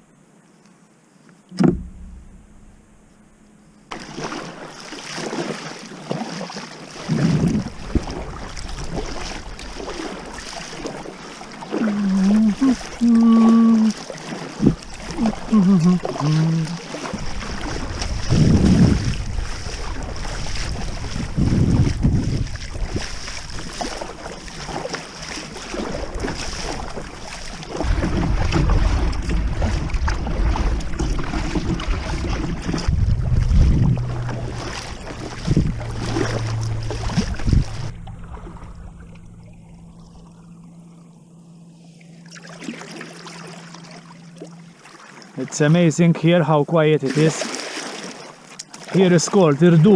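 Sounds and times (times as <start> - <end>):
water sloshing around kayak: 1.4 - 49.9
wind rumbling on microphone: 7.1 - 13.9, 14.6 - 40.6.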